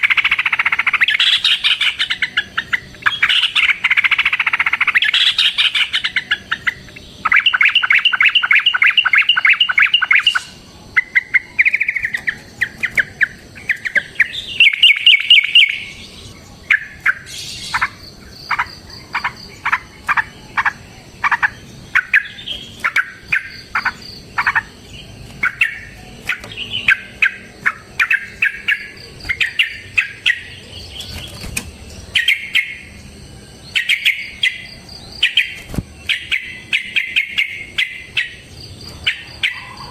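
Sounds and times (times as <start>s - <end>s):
bird chattering rattles: 0.0s - 15.8s
bird sharp chirps: 0.0s - 39.9s.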